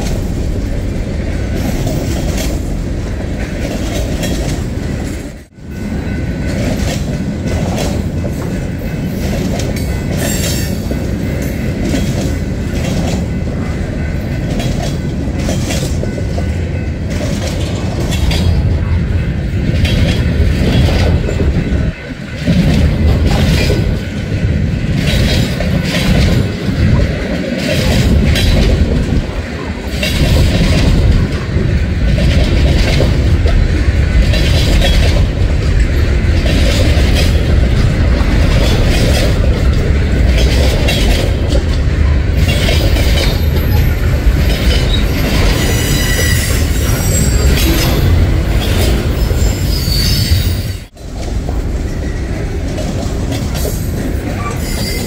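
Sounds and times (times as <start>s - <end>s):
train wheels rumbling: 0.0s - 55.0s
wheels clacking over rail joints: 0.0s - 55.0s
thin wheel squeal: 49.4s - 50.7s, 54.5s - 55.0s.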